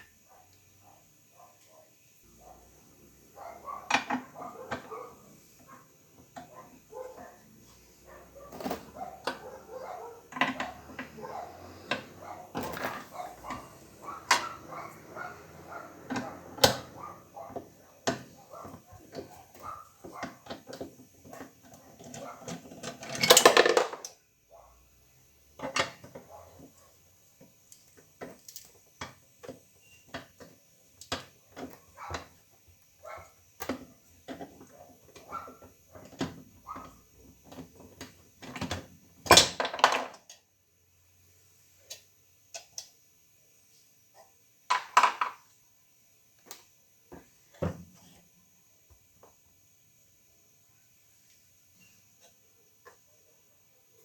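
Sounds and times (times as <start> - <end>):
tools and parts clattering: 8.4 - 24.2, 33.7 - 40.4.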